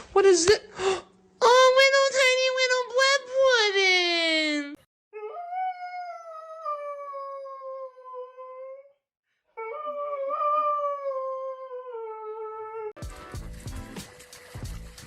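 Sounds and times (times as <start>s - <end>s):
dog howling: 5.2s - 9.0s, 9.6s - 13.0s.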